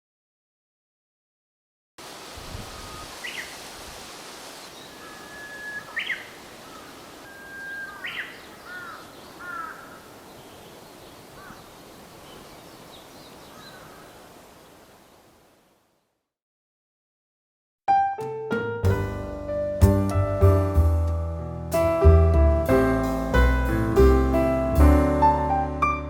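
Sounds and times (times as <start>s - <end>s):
outdoor hiss: 2.0s - 16.0s
bush warbler singing: 2.4s - 3.7s, 4.5s - 14.9s
faint bird chirps: 2.4s - 3.7s, 4.5s - 15.3s.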